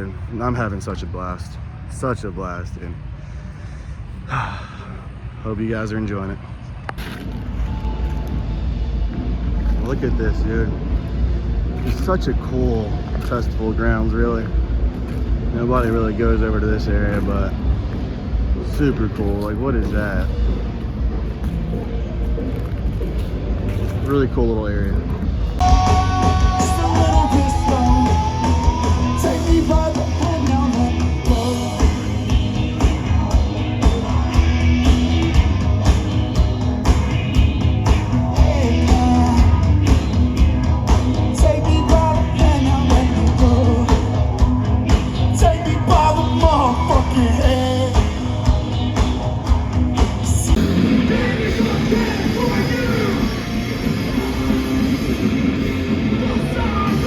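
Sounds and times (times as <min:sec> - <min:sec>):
heavy rock band playing: 0:25.5 - 0:57.0
sung and yelled vocals: 0:25.6 - 0:36.4, 0:37.9 - 0:57.0
fast dense drumming: 0:25.6 - 0:57.0.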